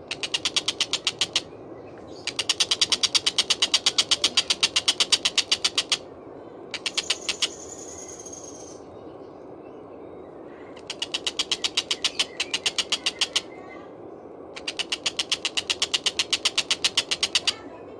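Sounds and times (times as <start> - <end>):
kingfisher harsh chattering call: 0.0 - 1.5, 2.2 - 6.0, 6.7 - 8.5, 10.8 - 13.5, 14.6 - 17.6
steady low hiss: 0.0 - 17.9.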